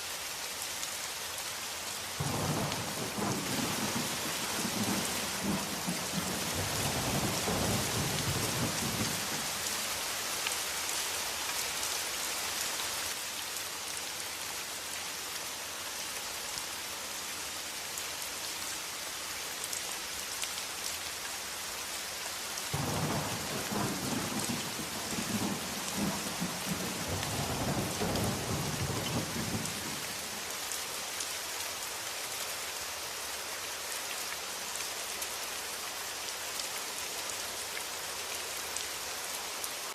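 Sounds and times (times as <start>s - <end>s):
heavy rain hissing: 0.0s - 33.6s
thunder rumbling: 2.2s - 9.4s, 22.8s - 30.0s.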